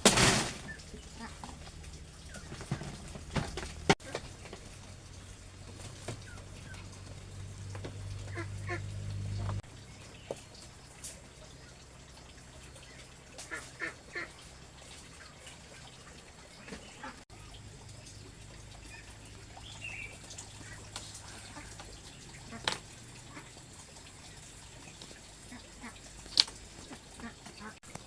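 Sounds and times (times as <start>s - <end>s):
bird calls: 12.6s - 27.8s.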